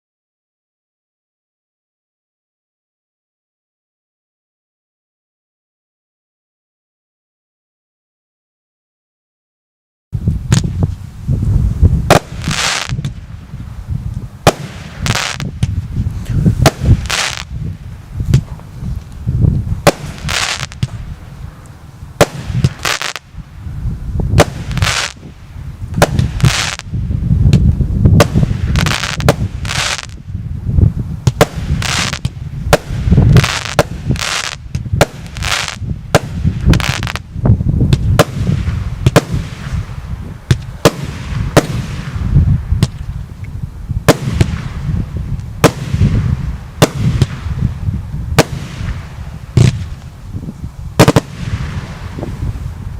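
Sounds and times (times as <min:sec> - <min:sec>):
steady low rumble: 0:10.2 - 0:52.9
firework bangs: 0:12.0 - 0:13.4, 0:14.4 - 0:17.6, 0:19.8 - 0:21.6, 0:22.2 - 0:23.4, 0:24.3 - 0:30.2, 0:31.2 - 0:37.3, 0:37.9 - 0:43.0, 0:44.0 - 0:50.1, 0:51.0 - 0:52.6.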